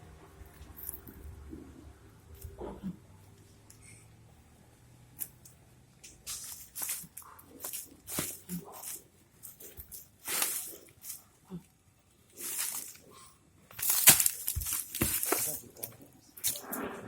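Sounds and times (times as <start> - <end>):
rustling and scraping: 6.0 - 11.4, 12.2 - 17.0.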